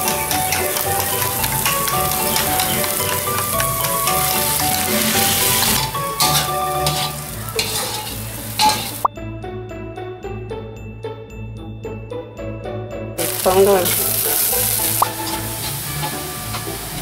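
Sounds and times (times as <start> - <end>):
egg sizzling in a hot wok: 0.0 - 9.1, 13.2 - 17.0
light background music: 0.0 - 17.0.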